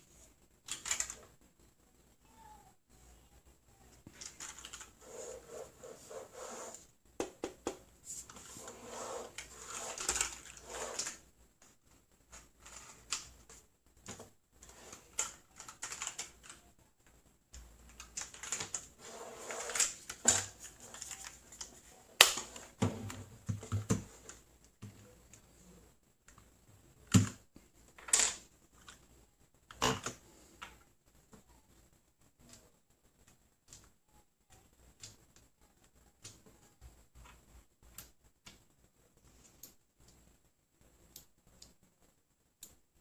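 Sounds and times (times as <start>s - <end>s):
mechanical keyboard clicking: 0.7s - 1.2s, 15.2s - 16.6s.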